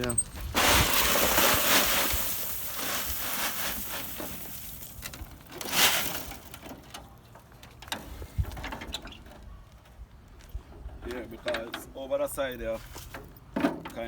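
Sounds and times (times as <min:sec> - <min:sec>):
debris crunching and scraping: 0:00.0 - 0:08.9.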